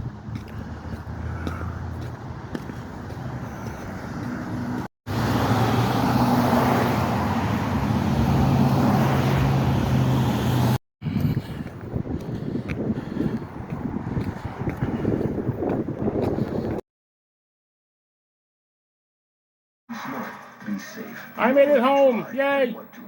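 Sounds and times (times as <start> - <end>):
car engine hum: 0.0 - 16.0
road noise: 0.0 - 16.8.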